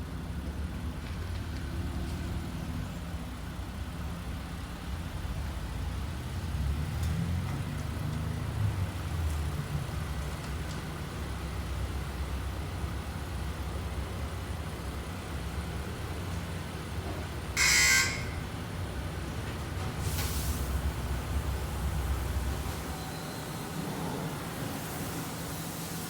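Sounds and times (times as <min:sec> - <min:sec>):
buzzing hissing burst: 0:17.6 - 0:18.5
car wash hiss: 0:20.0 - 0:26.0.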